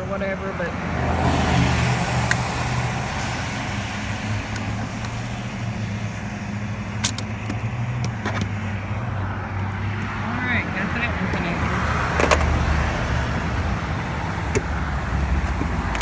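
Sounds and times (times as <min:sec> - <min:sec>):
traffic noise: 0:00.0 - 0:16.0
sharp clicks from car work: 0:02.1 - 0:02.8, 0:04.4 - 0:05.3, 0:07.0 - 0:08.6, 0:12.1 - 0:13.6, 0:14.2 - 0:16.0.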